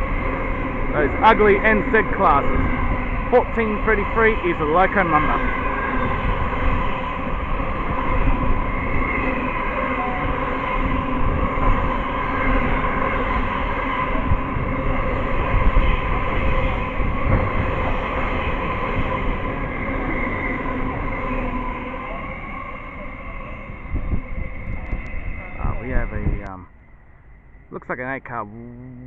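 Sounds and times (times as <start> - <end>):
train wagons rumbling: 0.0 - 28.5
diesel engine hum: 25.7 - 29.0.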